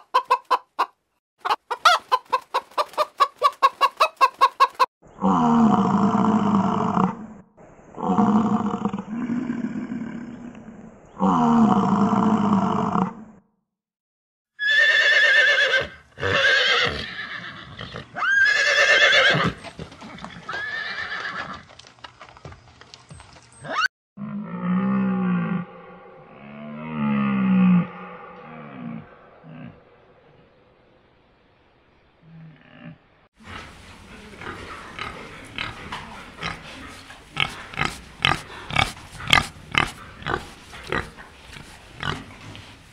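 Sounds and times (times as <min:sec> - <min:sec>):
horse whinnying: 0:14.6 - 0:19.6, 0:20.4 - 0:21.6
pig grunting: 0:32.2 - 0:42.8.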